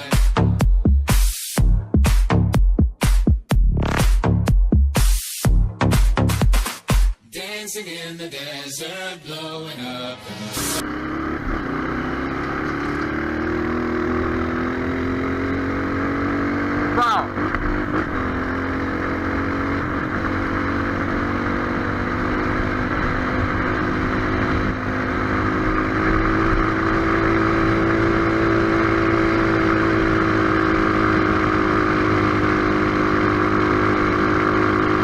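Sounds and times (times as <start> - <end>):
motorcycle engine running: 10.6 - 35.0
wind and road noise: 10.8 - 35.0.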